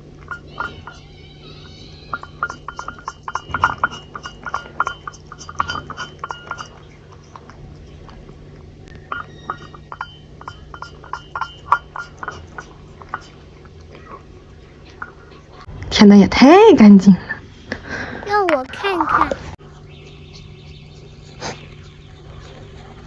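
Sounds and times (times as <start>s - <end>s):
cat licking a dish: 3.8s - 8.8s, 11.8s - 15.6s.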